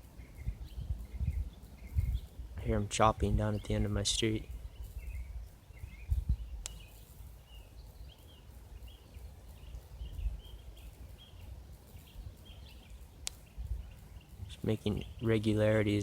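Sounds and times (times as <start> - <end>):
small birds chirping: 0.0 - 16.0
sharp click: 6.6 - 7.2, 13.2 - 13.5.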